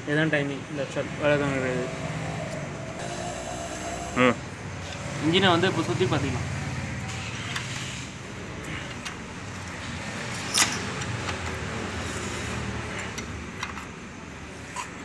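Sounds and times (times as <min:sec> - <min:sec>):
steady low hum: 0:00.6 - 0:04.8.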